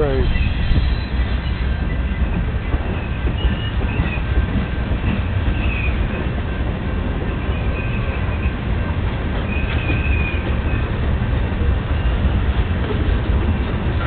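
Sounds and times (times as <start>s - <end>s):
high wheel squeals: 0.0s - 4.4s, 5.4s - 6.2s, 9.4s - 11.0s
freight train wheels rumbling: 0.0s - 14.0s.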